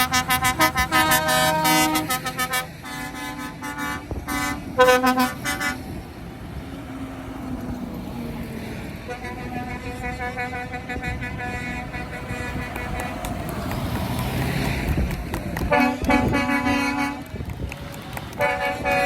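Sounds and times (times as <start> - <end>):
vehicle horns tooting: 0.0 - 6.0, 8.9 - 14.0, 15.6 - 17.4, 18.2 - 19.0
engines running: 0.0 - 19.0.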